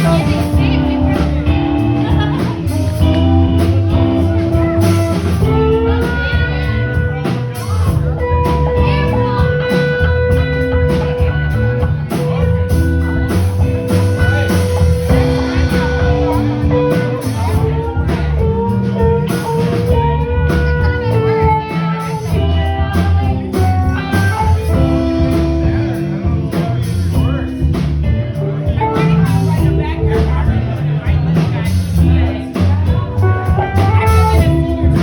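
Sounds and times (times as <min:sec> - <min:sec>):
blues-rock band with sliding guitar: 0:00.0 - 0:35.0.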